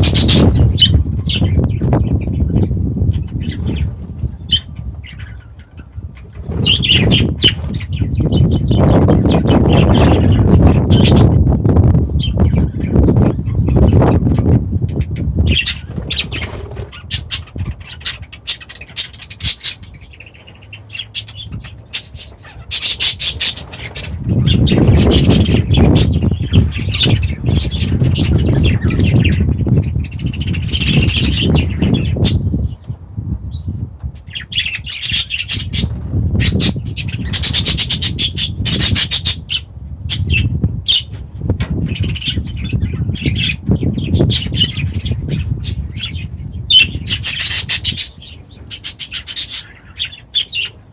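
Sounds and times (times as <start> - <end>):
parrots squawking and chirping: 0.0 - 11.4, 12.1 - 32.9, 34.2 - 50.9
low rumbling noise: 0.0 - 50.9.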